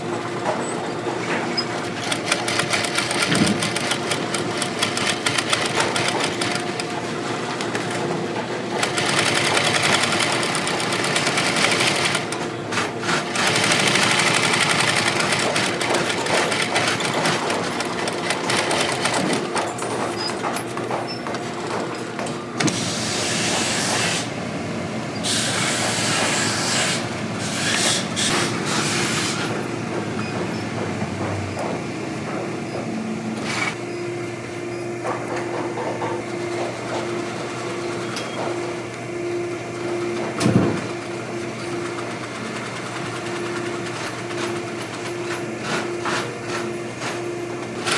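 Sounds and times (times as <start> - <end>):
machinery rattling: 1.3 - 20.5.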